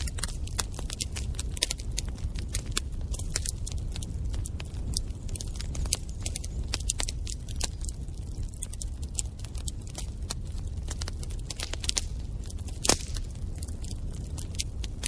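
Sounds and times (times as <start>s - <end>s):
wood fire crackling: 0.0s - 15.0s
loud fire pop: 12.8s - 13.2s.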